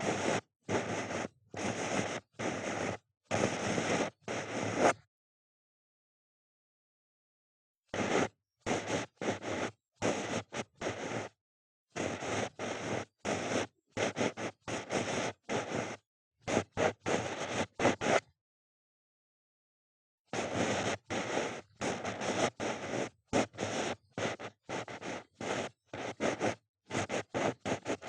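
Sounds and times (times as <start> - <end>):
ear pick scratching: 0.0 - 5.0, 8.0 - 11.4, 12.0 - 18.3, 20.4 - 28.0.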